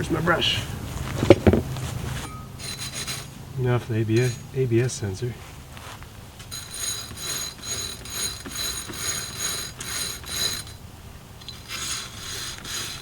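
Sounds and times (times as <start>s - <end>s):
high metallic ring: 2.2s - 3.4s, 4.1s - 5.0s, 6.5s - 12.3s
brush scrubbing metal: 2.6s - 3.4s, 4.1s - 4.5s, 6.5s - 10.8s, 11.4s - 13.0s.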